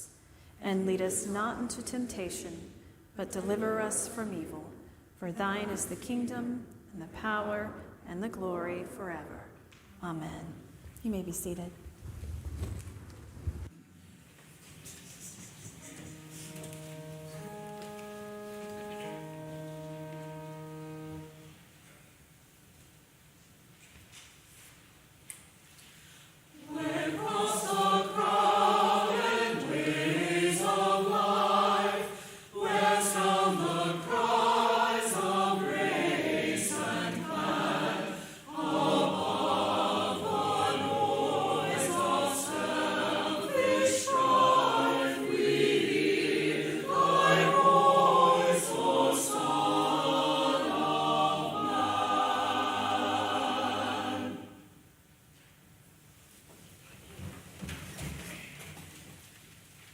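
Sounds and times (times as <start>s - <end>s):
church choir singing: 15.8s - 21.6s, 26.5s - 54.8s.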